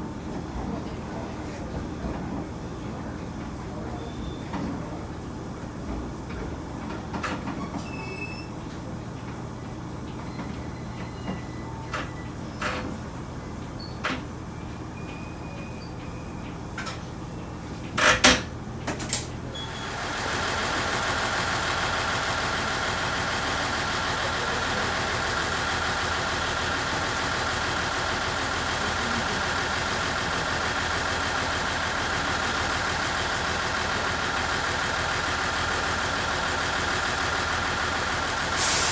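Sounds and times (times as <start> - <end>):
railcar low hum: 0.0 - 38.9
diesel engine noise: 17.6 - 38.9.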